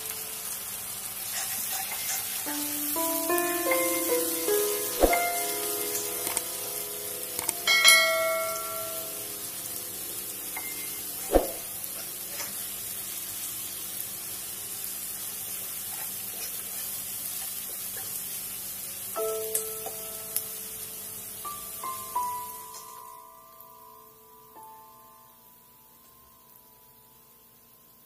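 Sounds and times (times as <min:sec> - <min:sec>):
onions sizzling in oil: 0:00.0 - 0:28.0
spatula stirring in pan: 0:01.2 - 0:02.5
bell-like chime: 0:07.4 - 0:11.2.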